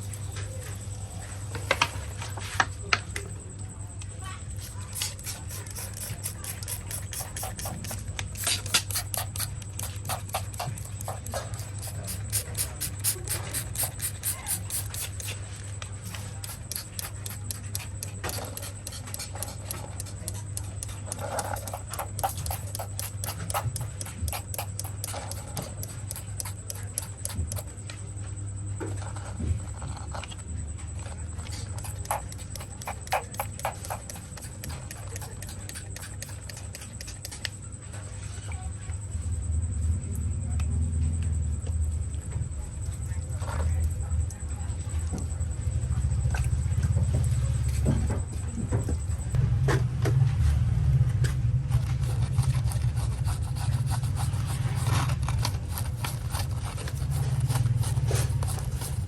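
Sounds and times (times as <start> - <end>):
small brush scrubbing: 4.5 - 27.7, 31.8 - 37.5, 51.7 - 59.0.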